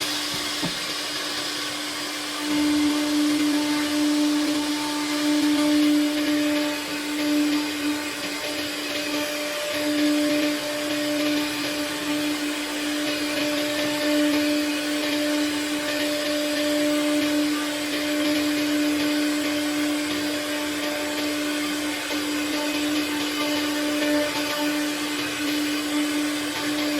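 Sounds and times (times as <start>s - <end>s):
saw spindle cutting wood: 2.0s - 26.9s.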